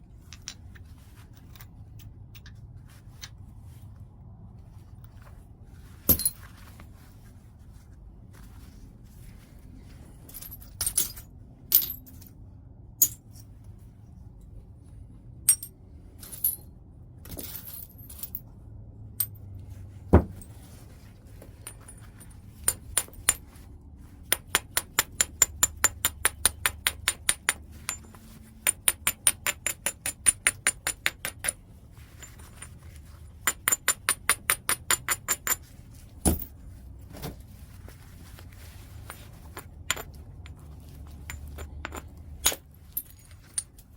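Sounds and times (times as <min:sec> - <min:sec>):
heavy stone strikes: 0:20.1 - 0:20.4.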